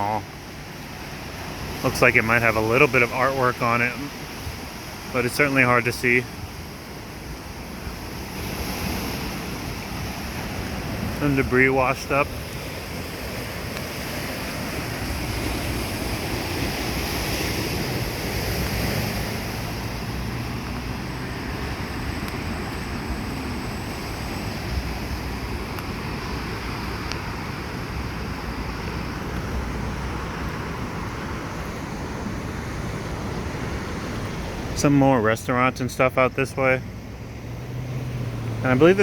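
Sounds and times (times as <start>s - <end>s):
surf washing on shore: 0.0s - 39.0s
wind rumbling on microphone: 3.9s - 34.8s.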